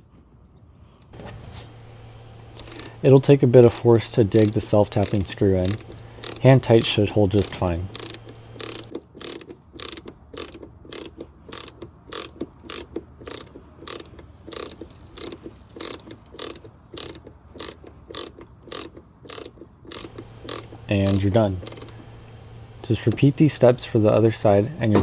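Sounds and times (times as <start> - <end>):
screwdriver driving screw clicks: 1.7 - 25.0.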